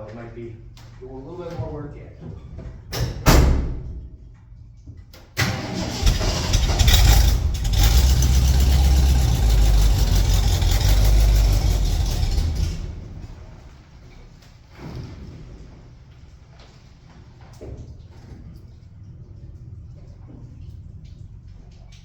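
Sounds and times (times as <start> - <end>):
engine cranking: 5.4 - 13.7
engine running with revs: 5.6 - 13.6.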